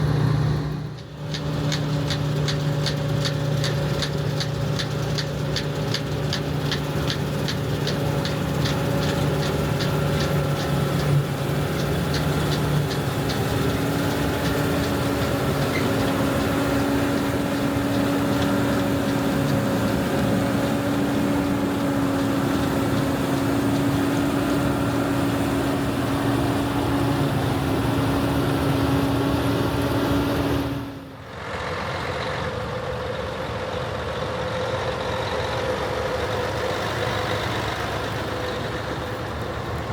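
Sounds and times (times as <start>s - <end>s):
diesel harvest machinery running: 0.0s - 39.9s
rapid ticking: 1.0s - 20.6s.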